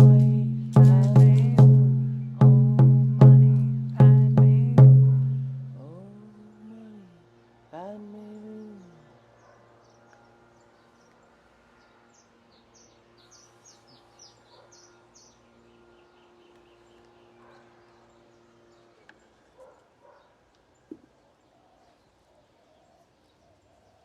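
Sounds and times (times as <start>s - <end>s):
low steady hum: 0.0s - 9.3s
bird chirping: 4.9s - 24.0s.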